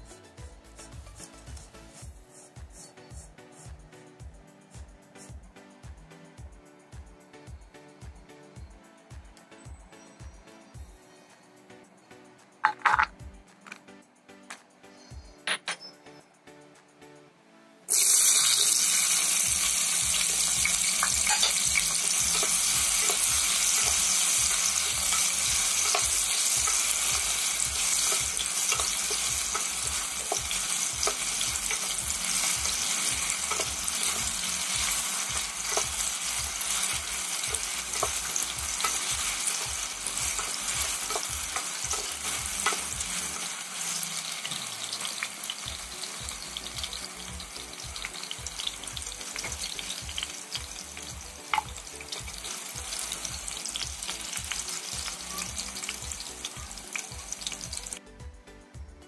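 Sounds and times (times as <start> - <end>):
potatoes sizzling in hot oil: 17.9 - 58.0.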